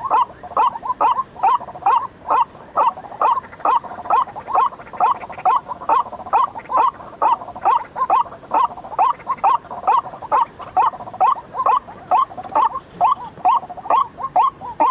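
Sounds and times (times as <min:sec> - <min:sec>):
waterhen calling: 0:00.0 - 0:14.9.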